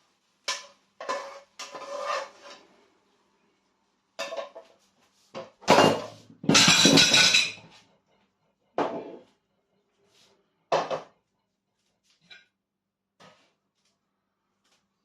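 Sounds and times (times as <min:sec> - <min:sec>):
clattering scrape: 0:00.5 - 0:02.7
dishes and utensils clattering: 0:04.2 - 0:04.7, 0:05.4 - 0:07.8.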